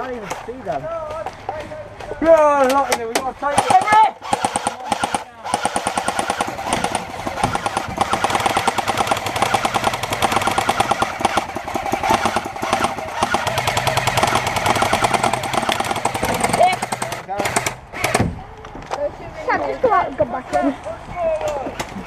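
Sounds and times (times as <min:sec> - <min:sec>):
airsoft guns firing full auto: 0:02.6 - 0:18.2.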